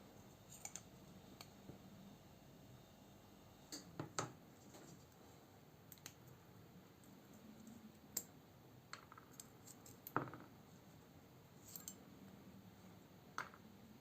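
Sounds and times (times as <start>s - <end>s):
metal knife parts clicking: 11.6s - 12.0s.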